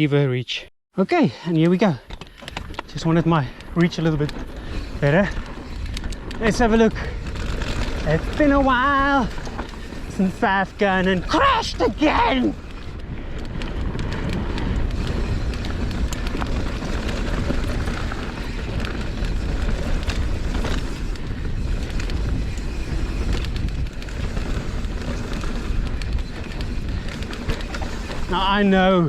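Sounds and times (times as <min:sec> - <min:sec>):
bike clicks and rattles: 0:01.8 - 0:29.0
tyres rolling over dirt and rock: 0:01.9 - 0:29.0
wind on microphone: 0:02.5 - 0:29.0.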